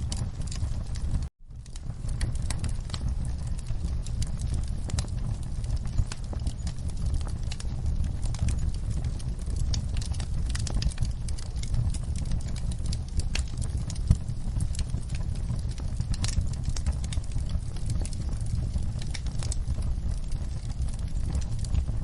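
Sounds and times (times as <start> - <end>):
fire crackling and popping: 0.0 - 22.0
fireplace fire rumble: 0.0 - 22.0.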